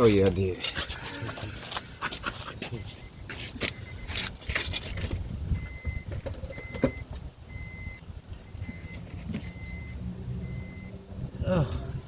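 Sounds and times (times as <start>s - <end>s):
handling clicks and rustles: 0.0s - 9.9s
high-pitched warning beeps: 2.6s - 4.3s, 5.5s - 11.0s.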